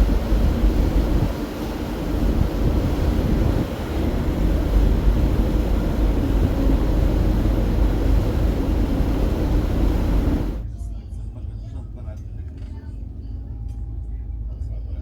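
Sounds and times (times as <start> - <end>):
ferry engines droning: 0.0 - 10.6
wind noise on microphone: 0.0 - 10.6.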